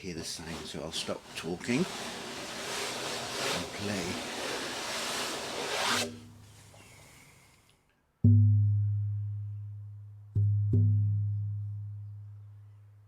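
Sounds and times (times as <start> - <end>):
frame drum beats: 8.2 - 9.4.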